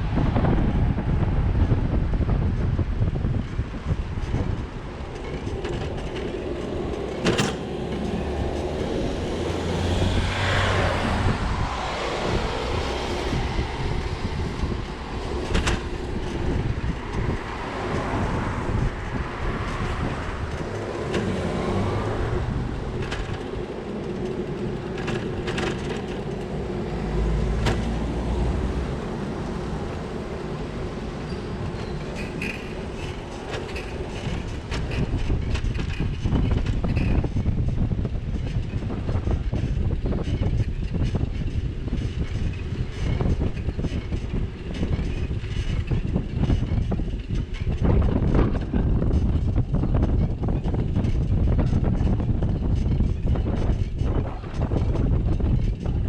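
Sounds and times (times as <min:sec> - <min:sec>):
bicycle tyre and wind noise: 0:00.0 - 0:56.0
passing traffic rumbles: 0:00.0 - 0:56.0
rattles and knocks from bumps: 0:04.2 - 0:11.0, 0:13.2 - 0:56.0.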